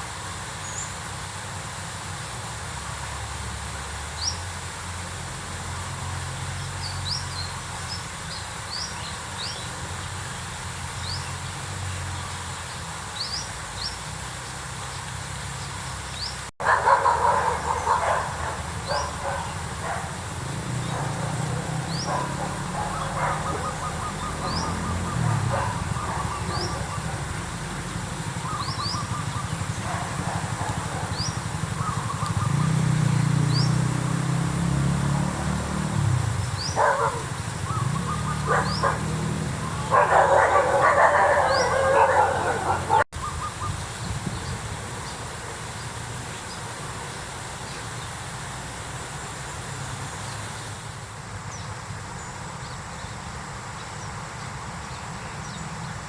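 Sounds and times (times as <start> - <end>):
mid-pitched animal calling: 16.6 - 27.7, 39.6 - 43.4.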